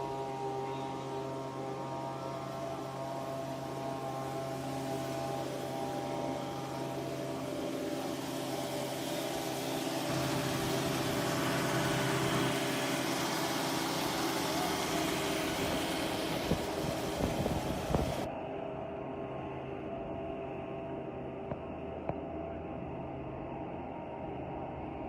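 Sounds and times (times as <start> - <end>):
diesel engine running: 0.0 - 18.3.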